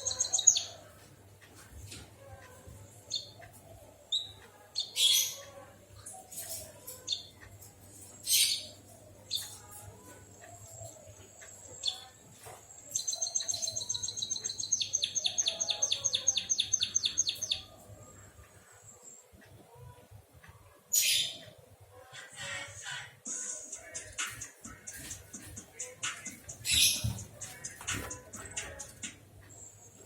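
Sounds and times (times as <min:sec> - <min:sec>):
bird chirping and trilling: 0:00.0 - 0:00.8, 0:12.9 - 0:17.7, 0:26.6 - 0:27.2.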